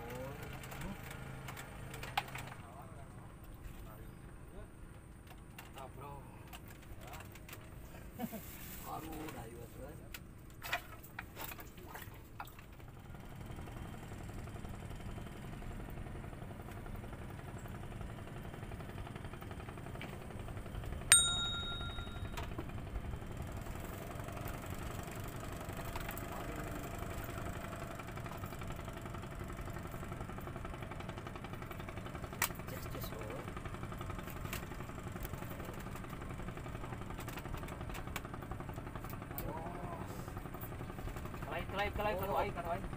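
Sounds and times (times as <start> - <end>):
low engine-like rumble: 2.4 - 42.9
sharp metallic ding: 21.1 - 22.4.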